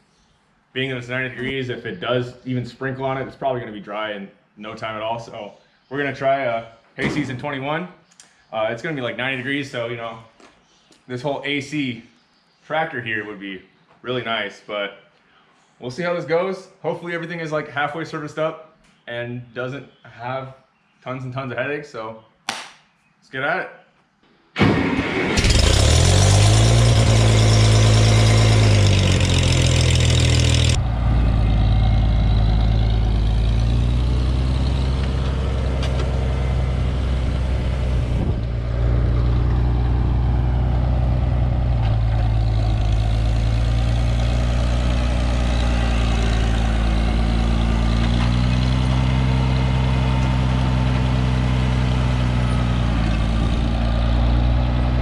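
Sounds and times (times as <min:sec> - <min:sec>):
tractor engine running: 0:24.9 - 0:55.0.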